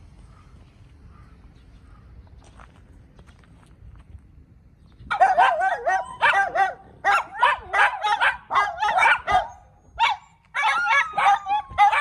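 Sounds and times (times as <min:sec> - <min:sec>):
dog yelping and barking: 0:05.1 - 0:12.0.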